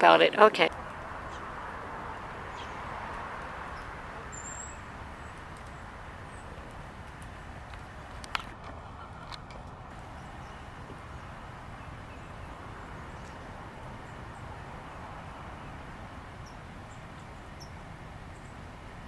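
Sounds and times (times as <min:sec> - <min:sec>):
outdoor background noise: 0:00.0 - 0:19.0
faint bird chirps: 0:03.8 - 0:06.5, 0:10.0 - 0:14.3.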